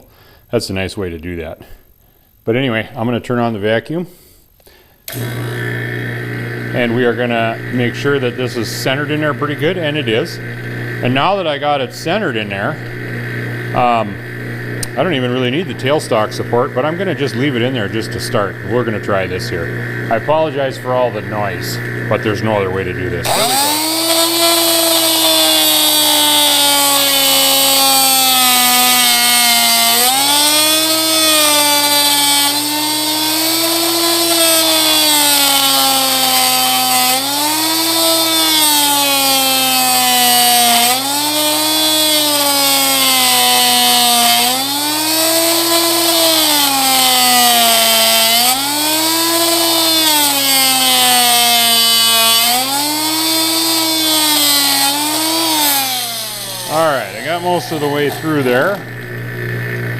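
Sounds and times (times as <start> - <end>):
steady low hum: 4.6 - 37.3, 56.0 - 59.9
multi-tool cutting wood: 5.1 - 59.9.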